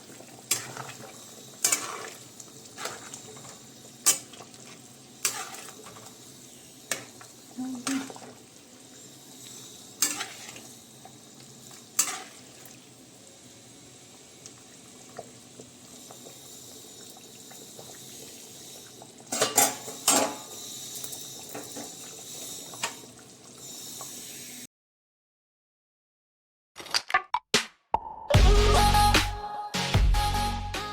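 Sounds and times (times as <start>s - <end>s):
low sizzle of frying: 0.0s - 24.7s
metal spoon scraping cooking pot: 5.2s - 6.0s, 10.0s - 10.6s.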